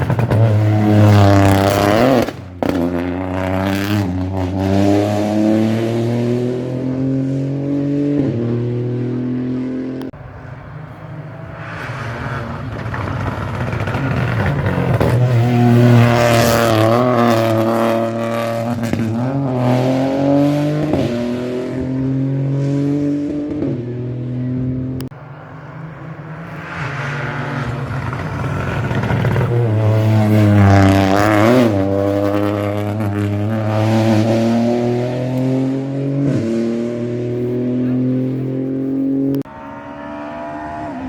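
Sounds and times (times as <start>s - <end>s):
rally car engines revving: 0.0s - 41.0s.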